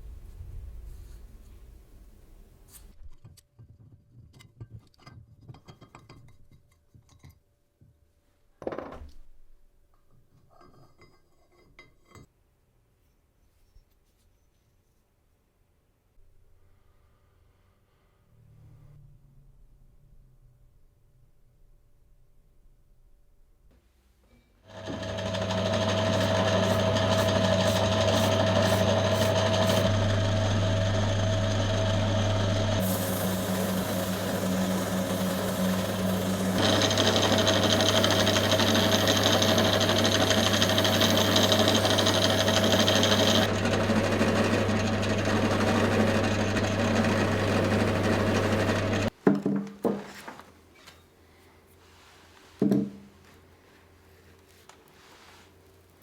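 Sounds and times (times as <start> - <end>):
power tool motor running: 24.7 - 49.1.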